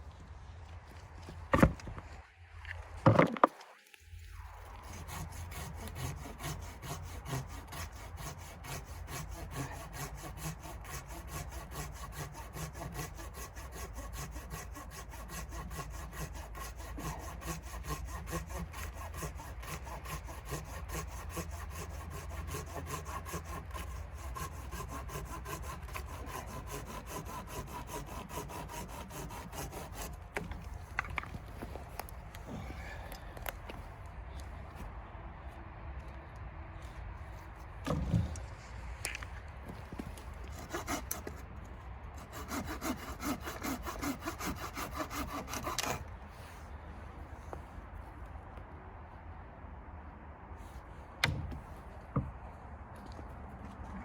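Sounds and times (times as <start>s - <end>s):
hand saw cutting wood: 4.7s - 32.0s, 37.9s - 38.4s, 39.8s - 41.5s, 42.2s - 46.5s.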